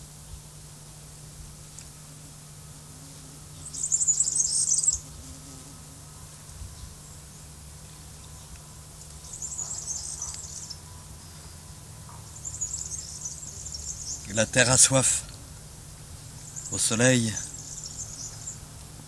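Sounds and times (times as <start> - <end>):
steady low hum: 0.0 - 19.0
birds chirping: 3.5 - 5.3, 6.6 - 18.8.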